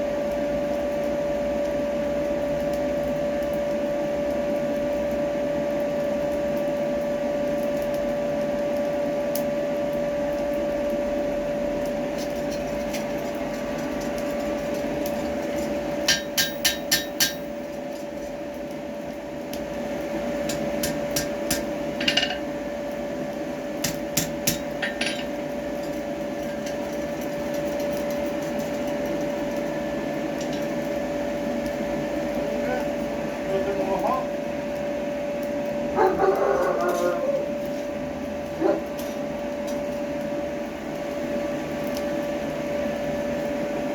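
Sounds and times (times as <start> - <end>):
steady machine hum: 0.0 - 43.9
hammer striking tongs on anvil: 16.0 - 17.6, 20.5 - 22.4, 23.8 - 25.4.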